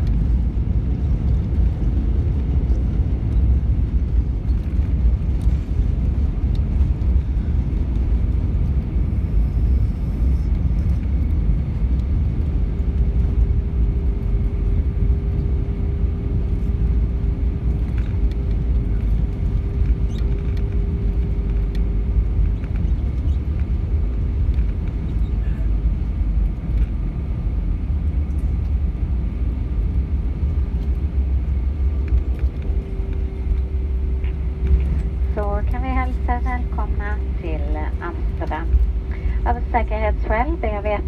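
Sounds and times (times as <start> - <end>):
aircraft cabin rumble: 0.0 - 41.0
faint steady hum: 28.2 - 41.0.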